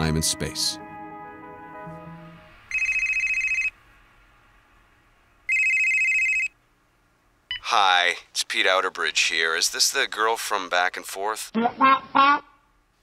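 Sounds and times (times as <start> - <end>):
music: 0.0 - 2.7
telephone ringing: 2.7 - 3.8, 5.5 - 6.6.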